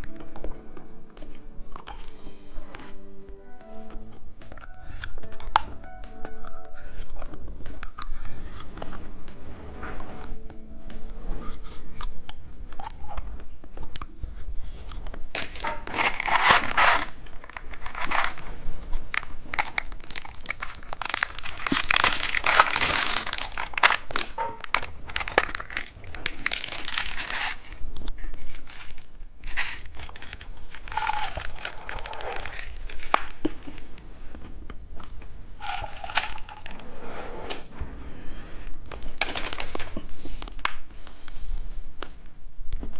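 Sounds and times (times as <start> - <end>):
crunching and chewing candy: 6.8 - 8.9, 11.7 - 34.0, 34.8 - 36.8, 39.0 - 40.8
wrappers crinkling: 14.6 - 34.0, 35.6 - 36.8, 39.0 - 40.7.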